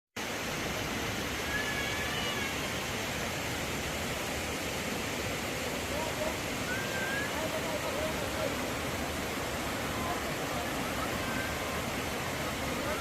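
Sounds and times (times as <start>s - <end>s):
faint high-pitched call: 1.4s - 2.7s, 6.6s - 7.5s.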